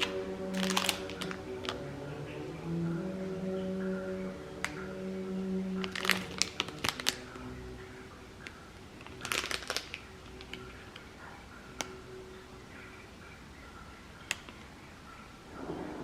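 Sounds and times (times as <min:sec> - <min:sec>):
crinkling with sharp clicks: 0:00.0 - 0:01.9, 0:04.6 - 0:04.9, 0:05.8 - 0:07.6, 0:08.4 - 0:12.0, 0:14.1 - 0:15.2.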